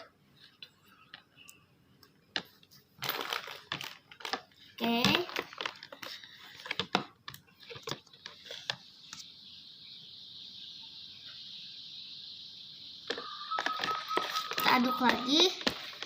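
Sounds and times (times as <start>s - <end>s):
steady high hiss: 8.0s - 16.0s.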